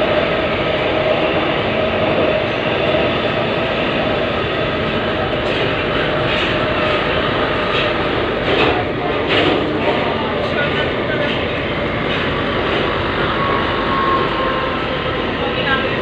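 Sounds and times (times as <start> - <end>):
train rumbling from inside: 0.0 - 16.0
train wheel clacks: 4.8 - 16.0.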